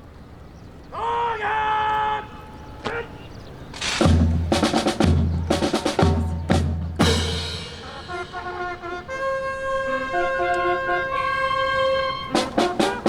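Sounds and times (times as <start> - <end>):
snare drum strokes: 3.8 - 8.7, 12.3 - 13.0
bass drum beats: 4.0 - 8.0
held brass chords: 4.0 - 13.0.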